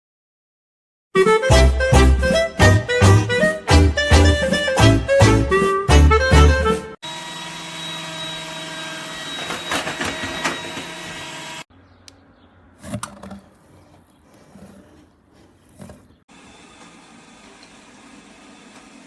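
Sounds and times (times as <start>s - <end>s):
robot vacuum motor whine: 7.0s - 11.6s.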